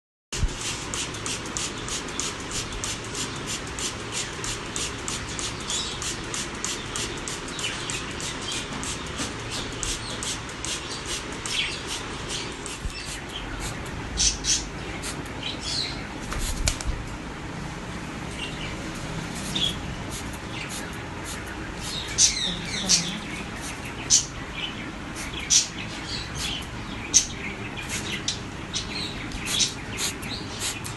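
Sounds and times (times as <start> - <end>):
water spray hissing: 0.4 - 13.8, 19.2 - 23.8, 27.8 - 28.4, 29.4 - 30.9
parrot wings flapping: 16.2 - 17.1.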